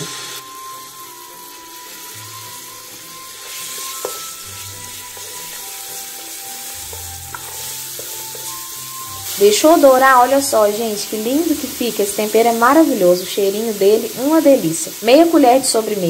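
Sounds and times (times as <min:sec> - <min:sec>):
paste sizzling in hot oil: 0:00.0 - 0:16.0
wooden spoon stirring: 0:03.4 - 0:10.1.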